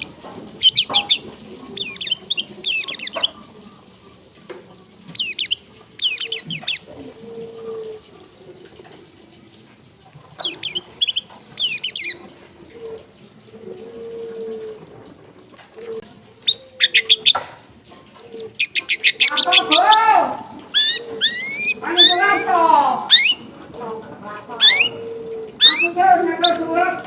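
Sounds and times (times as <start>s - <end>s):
bird singing high sweeping notes: 0.0s - 3.3s, 18.4s - 23.5s, 24.5s - 27.0s.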